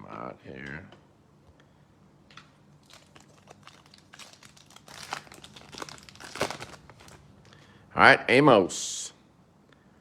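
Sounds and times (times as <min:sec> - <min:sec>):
plastic packaging crinkling: 0:02.4 - 0:07.5.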